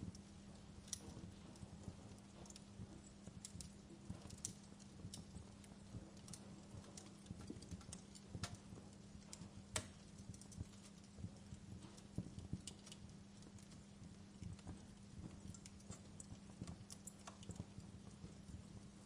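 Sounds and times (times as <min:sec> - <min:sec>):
faint steady hum: 0:00.0 - 0:19.0
wood fire crackling: 0:00.0 - 0:19.0.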